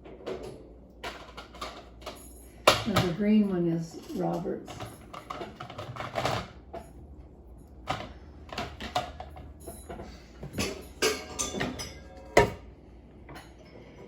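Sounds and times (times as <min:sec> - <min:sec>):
dishes and cups clinking: 0:07.9 - 0:12.7.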